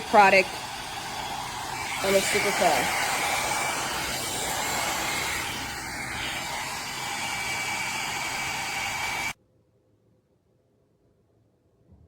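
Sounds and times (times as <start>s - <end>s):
fan motor whine: 0.0s - 9.4s
hair dryer brush blowing air: 0.0s - 9.4s.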